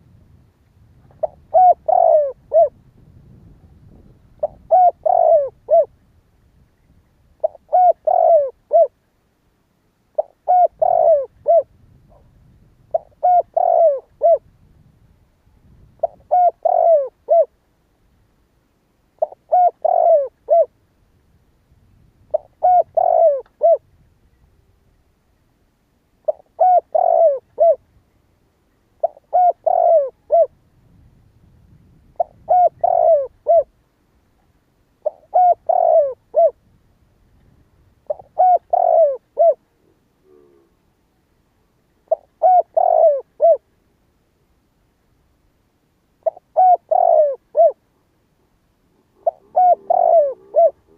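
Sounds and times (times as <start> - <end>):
dove cooing: 1.1 - 6.0, 7.4 - 9.0, 10.2 - 14.6, 16.0 - 17.6, 19.2 - 20.8, 22.2 - 23.9, 26.2 - 27.9, 29.0 - 30.6, 32.1 - 33.8, 35.0 - 36.6, 38.0 - 41.0, 42.0 - 43.7, 46.2 - 47.8, 48.9 - 50.9.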